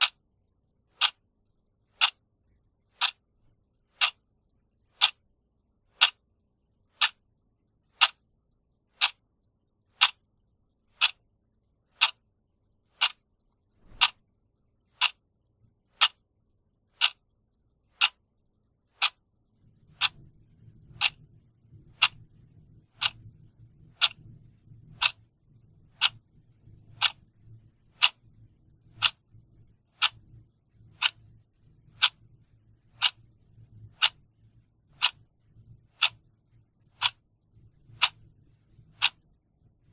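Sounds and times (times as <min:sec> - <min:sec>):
clock ticking: 0:00.0 - 0:00.2, 0:00.8 - 0:01.2, 0:01.8 - 0:02.2, 0:02.9 - 0:03.3, 0:03.9 - 0:04.3, 0:04.9 - 0:05.3, 0:05.9 - 0:06.2, 0:06.9 - 0:07.2, 0:07.9 - 0:08.2, 0:08.9 - 0:09.2, 0:09.9 - 0:10.2, 0:10.9 - 0:11.2, 0:11.9 - 0:14.3, 0:14.9 - 0:15.2, 0:15.9 - 0:16.2, 0:17.0 - 0:18.3, 0:18.9 - 0:19.3, 0:19.9 - 0:25.3, 0:25.9 - 0:36.3, 0:36.9 - 0:39.9
faint low hum: 0:00.0 - 0:39.9.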